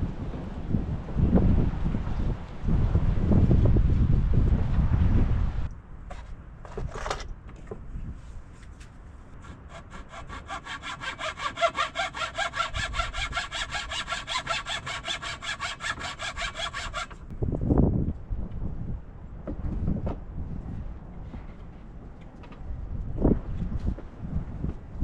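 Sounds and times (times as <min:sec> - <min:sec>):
hand saw cutting wood: 0:09.4 - 0:17.2.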